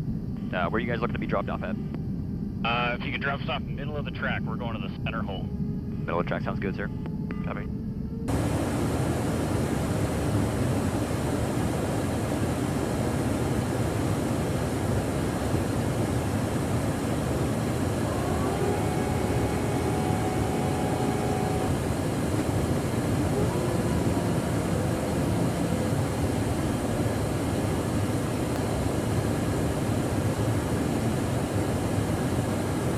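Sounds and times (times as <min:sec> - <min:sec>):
faint steady tones: 0:00.0 - 0:32.9
jet aircraft rushing noise: 0:08.3 - 0:32.9.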